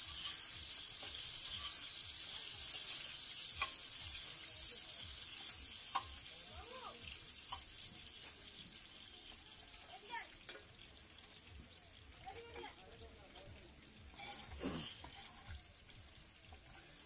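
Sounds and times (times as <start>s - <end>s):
metal spatula scraping griddle: 0.0s - 8.9s, 14.1s - 17.0s
chicken sizzling in hot oil: 0.0s - 17.0s.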